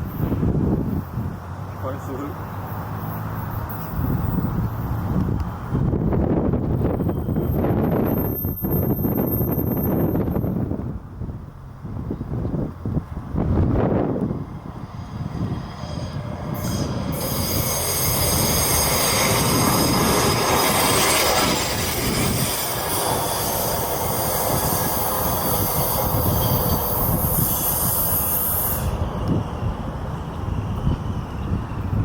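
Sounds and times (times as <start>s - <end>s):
steel wheels squealing: 2.6s - 5.1s, 6.8s - 10.6s, 15.7s - 32.0s
freight cars rolling: 12.7s - 32.0s.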